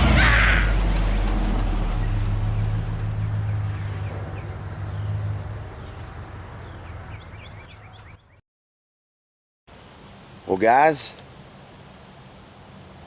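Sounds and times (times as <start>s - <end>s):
low engine drone: 0.0s - 7.9s
small birds chirping: 3.4s - 8.4s.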